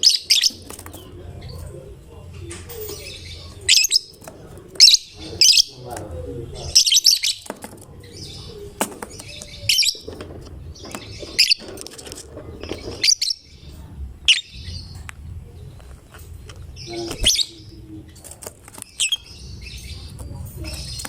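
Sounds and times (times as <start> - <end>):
lovebird chirping: 0.0 - 1.7, 2.7 - 4.2, 6.6 - 11.8, 12.6 - 15.1, 16.6 - 18.3, 18.9 - 21.0.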